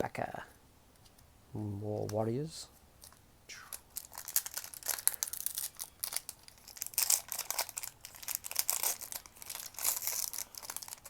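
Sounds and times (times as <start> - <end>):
foil wrapper crinkling and tearing: 3.9 - 11.0.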